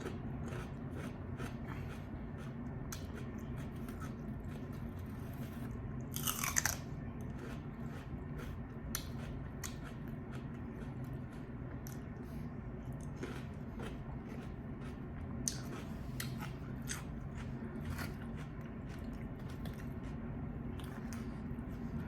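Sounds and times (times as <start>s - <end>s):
chewing crispy fried chicken: 0.0s - 22.0s.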